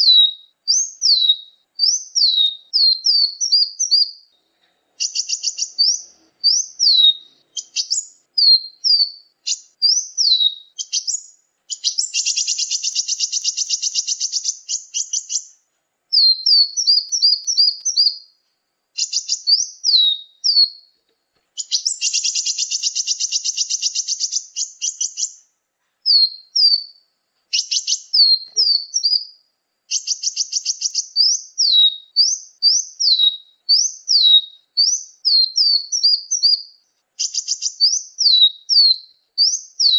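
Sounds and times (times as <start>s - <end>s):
buzzy trilled bird chatter: 5.0s - 15.5s, 16.1s - 18.2s, 19.0s - 20.6s, 21.6s - 25.4s
high thin songbird notes: 16.1s - 18.4s, 21.6s - 25.4s.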